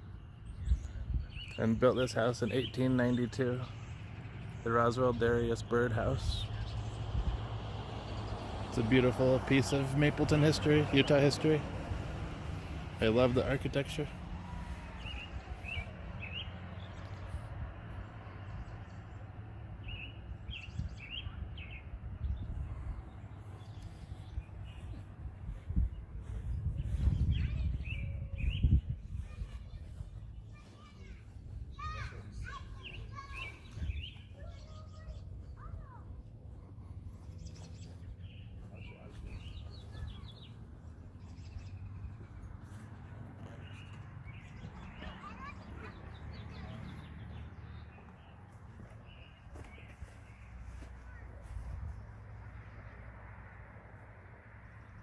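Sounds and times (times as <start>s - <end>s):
small birds chirping: 0.0s - 55.0s
steady low rumble: 20.9s - 34.4s.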